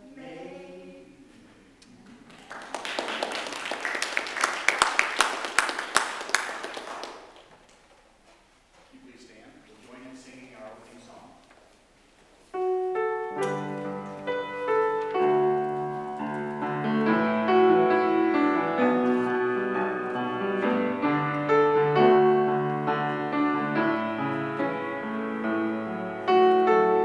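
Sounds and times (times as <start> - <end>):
slow piano piece: 12.5 - 27.0.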